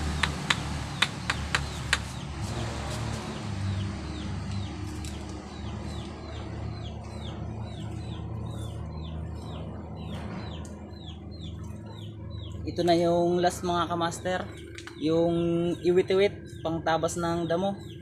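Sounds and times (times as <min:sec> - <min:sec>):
bird chirping: 0:00.0 - 0:02.6, 0:03.3 - 0:18.0.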